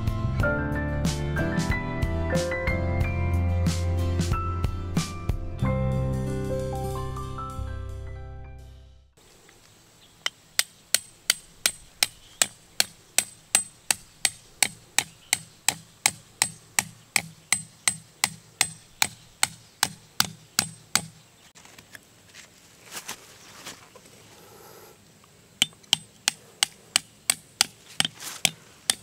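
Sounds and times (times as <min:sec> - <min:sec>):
hammer driving metal stake: 0:10.2 - 0:21.2, 0:25.6 - 0:29.0.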